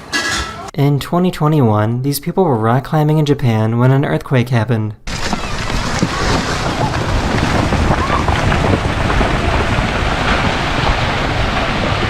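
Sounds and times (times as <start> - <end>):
wind buffeting microphone: 5.1 - 12.0.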